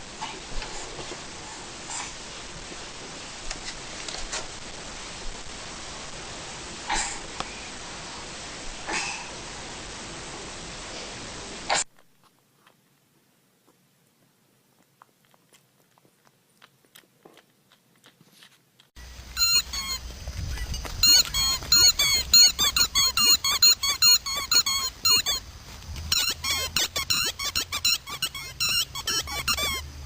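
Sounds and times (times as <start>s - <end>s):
high-pitched squeaks: 19.3s - 30.0s.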